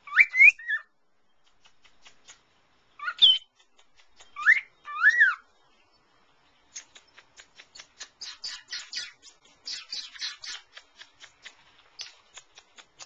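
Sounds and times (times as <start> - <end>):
cockatiel chattering: 6.8 - 13.0.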